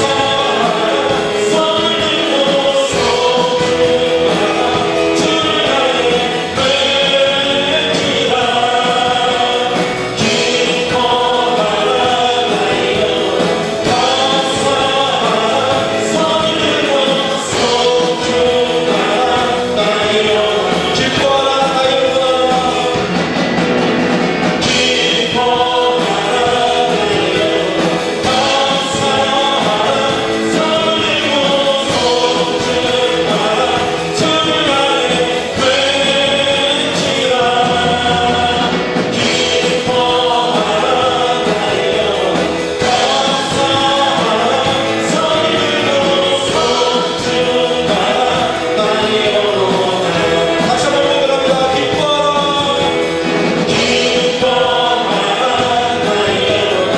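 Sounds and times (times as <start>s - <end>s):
band accompaniment: 0.0s - 56.9s
congregation singing praise song: 0.0s - 56.9s.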